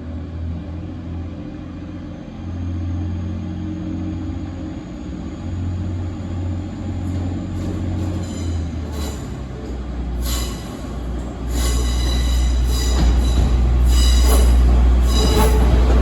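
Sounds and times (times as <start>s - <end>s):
train rumble: 1.6s - 16.0s
metallic wheel squeal: 7.0s - 9.6s, 10.2s - 16.0s.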